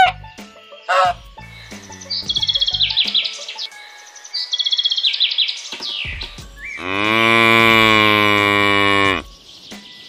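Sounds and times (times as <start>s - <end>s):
cow mooing: 6.8s - 9.3s.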